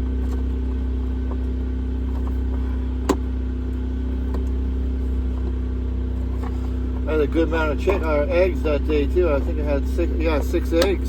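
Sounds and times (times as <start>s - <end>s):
portable generator running: 6.3s - 11.0s.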